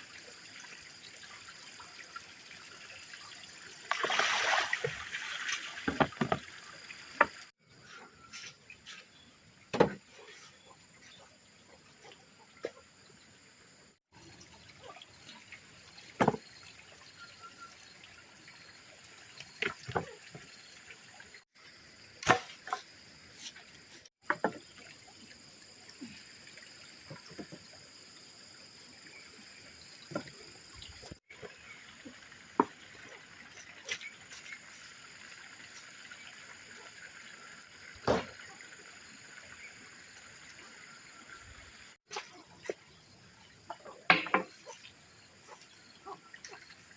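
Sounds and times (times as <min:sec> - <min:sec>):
water trickling: 0:00.0 - 0:13.2, 0:14.0 - 0:22.2, 0:22.8 - 0:46.9
sharp knocks and clatters: 0:44.1 - 0:44.6.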